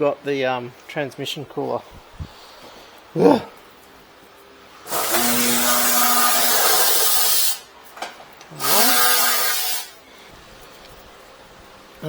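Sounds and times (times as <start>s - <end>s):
electric power tool spinning: 4.9s - 7.6s, 8.6s - 10.0s.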